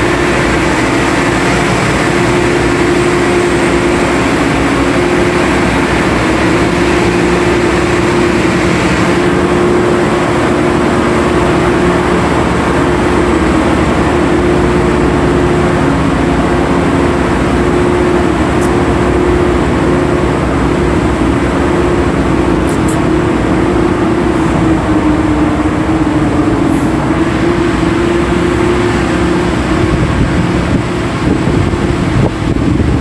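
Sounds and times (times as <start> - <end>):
boat engine droning: 0.0 - 33.0.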